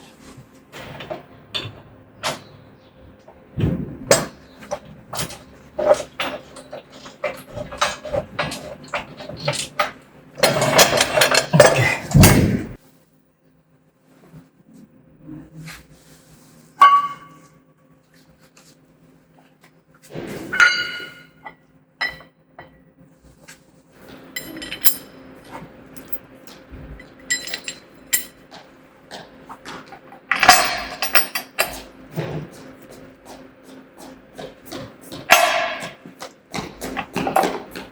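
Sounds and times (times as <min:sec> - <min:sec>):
sharp ringing metal strikes: 0:16.8 - 0:17.5
metal parts clinking together: 0:24.3 - 0:25.1, 0:27.0 - 0:28.4, 0:30.3 - 0:31.7.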